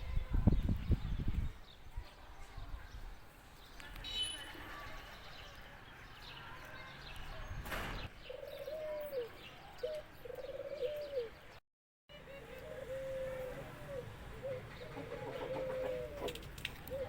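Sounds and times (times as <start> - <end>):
dove cooing: 8.3 - 11.4, 12.3 - 17.0.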